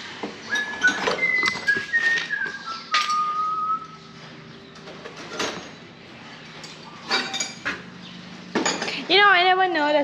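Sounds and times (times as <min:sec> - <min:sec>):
person whistling: 0:00.5 - 0:04.0.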